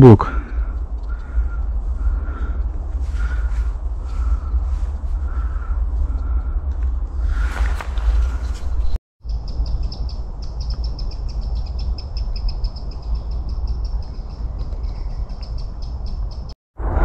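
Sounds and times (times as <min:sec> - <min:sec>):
steady low rumble: 0:00.0 - 0:17.0
small bird singing high chirps: 0:08.4 - 0:16.5.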